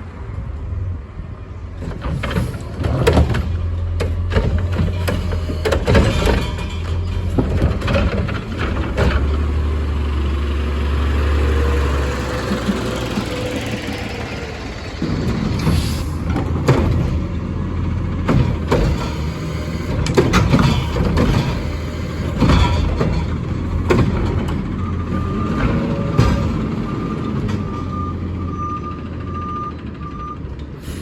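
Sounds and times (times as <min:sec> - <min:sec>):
diesel engine droning: 0:00.0 - 0:31.0
sharp knocks and bangs: 0:15.0 - 0:27.7.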